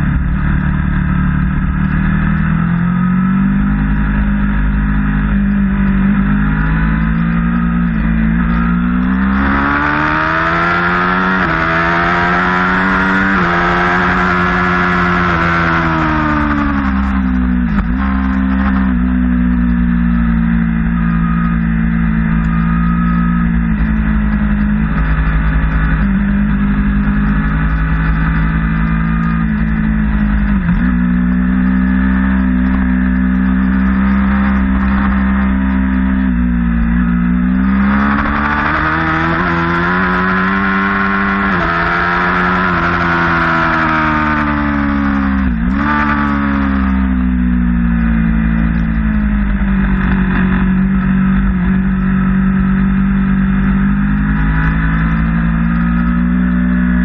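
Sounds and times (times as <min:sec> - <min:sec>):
motorcycle engine revving high: 0:00.0 - 0:57.0.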